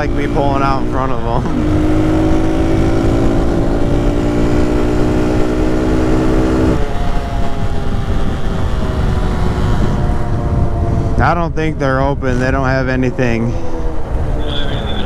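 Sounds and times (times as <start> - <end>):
motorcycle engine running: 0.0 - 11.2
low wind rumble: 0.0 - 15.0.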